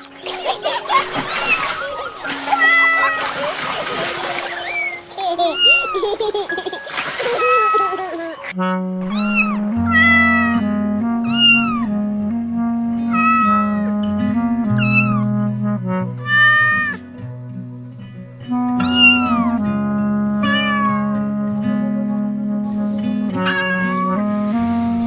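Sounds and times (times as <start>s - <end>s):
background music of held notes: 0.0s - 25.0s
cat meowing: 9.1s - 10.6s, 11.2s - 11.9s, 13.1s - 14.0s, 14.8s - 15.2s, 16.2s - 17.0s, 18.8s - 19.5s, 20.4s - 21.2s, 23.4s - 24.3s.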